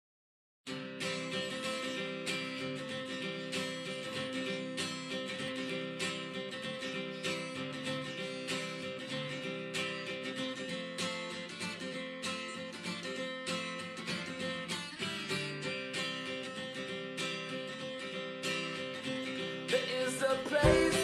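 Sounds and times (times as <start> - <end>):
acoustic guitar strumming: 0.7 - 21.0.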